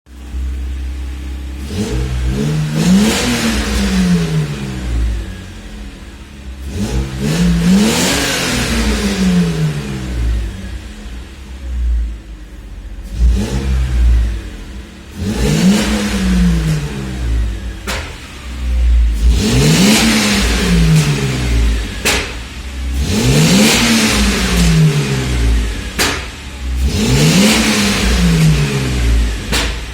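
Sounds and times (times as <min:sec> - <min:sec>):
car engine revving: 0:00.1 - 0:29.9
sharp crack: 0:17.7 - 0:18.6, 0:19.9 - 0:29.9.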